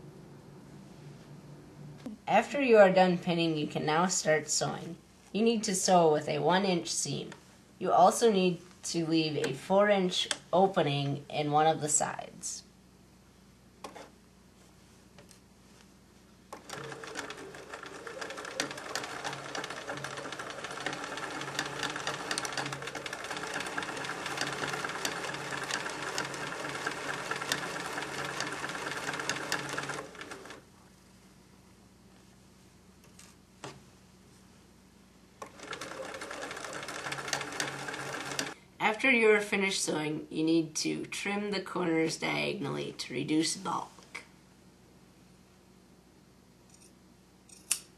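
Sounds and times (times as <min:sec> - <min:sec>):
sewing machine stitching: 0:16.6 - 0:30.6, 0:35.4 - 0:38.6.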